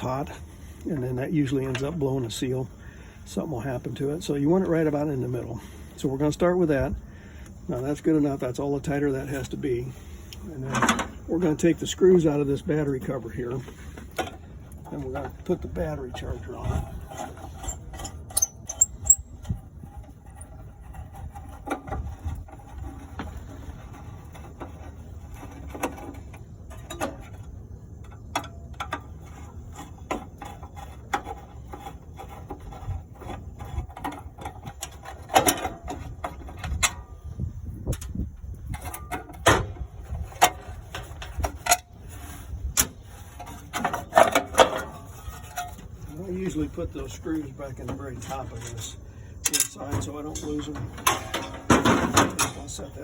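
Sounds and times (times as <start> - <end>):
tool clicks and scrapes: 16.2 - 27.5, 28.1 - 37.1.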